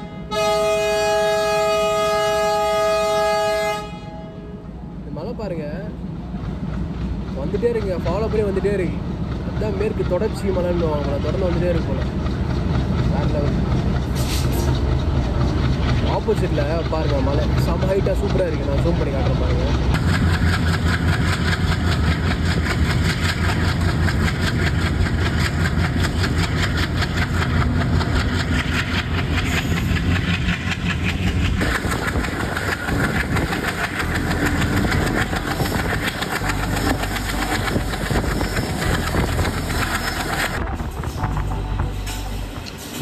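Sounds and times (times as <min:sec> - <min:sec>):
diesel locomotive drone: 0:00.0 - 0:43.0
train coaches rolling on rails: 0:00.0 - 0:43.0.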